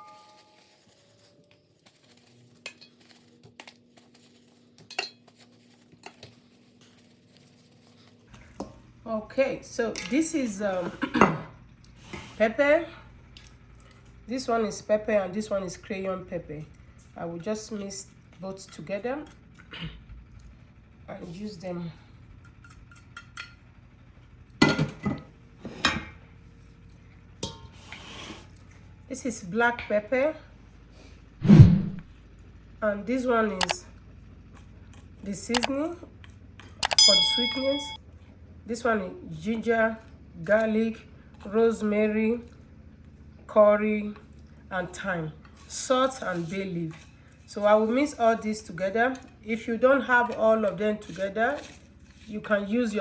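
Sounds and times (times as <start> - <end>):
kitchenware knocking and clinking: 24.6 - 25.2
dishes clinking on counter: 24.6 - 26.2, 36.8 - 38.0.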